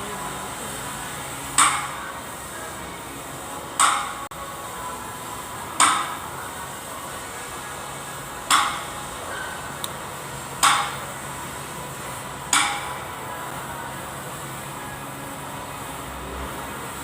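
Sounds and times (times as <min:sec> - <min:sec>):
steady background noise: 0:00.0 - 0:17.0
sharp metallic knocks ringing: 0:01.6 - 0:02.1, 0:03.8 - 0:04.3, 0:08.5 - 0:09.0, 0:10.6 - 0:11.1, 0:12.5 - 0:13.0.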